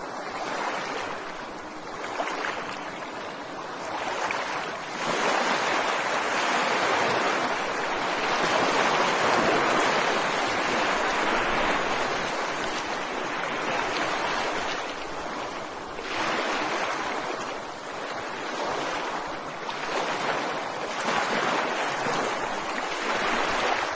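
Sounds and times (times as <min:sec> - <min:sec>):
ocean waves breaking: 0:00.0 - 0:23.9.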